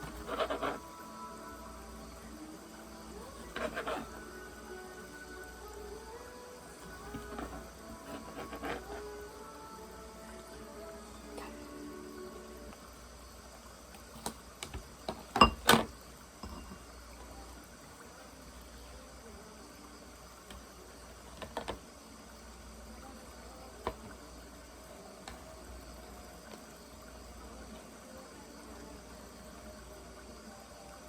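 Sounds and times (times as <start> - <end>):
running water: 0.0 - 31.0
dishes and utensils clattering: 15.1 - 16.9.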